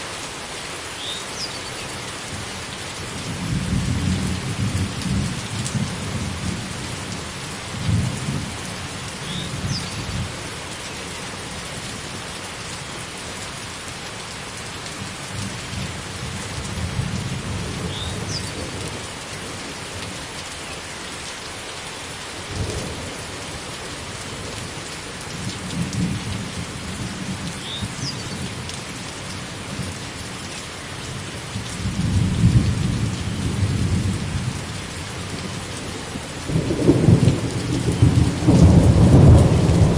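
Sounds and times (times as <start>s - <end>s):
heavy rain falling: 0.0s - 39.9s
thunder rumbling: 35.3s - 39.9s.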